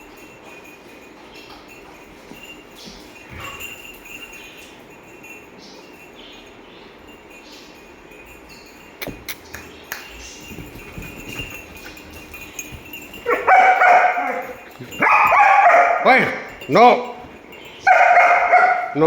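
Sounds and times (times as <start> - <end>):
dog barking loudly: 13.2 - 16.6, 17.8 - 19.0.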